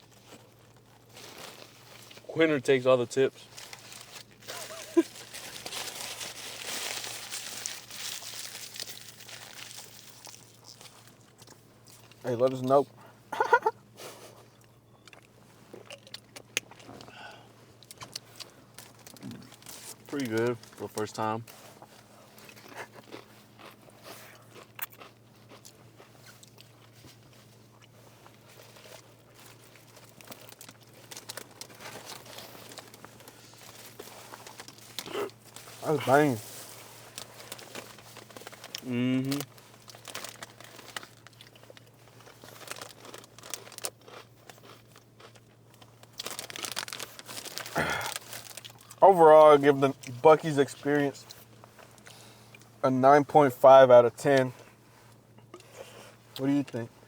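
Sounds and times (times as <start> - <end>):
food wrapper crinkling: 0.1 - 2.3, 3.4 - 12.6, 17.8 - 23.8, 24.5 - 52.6.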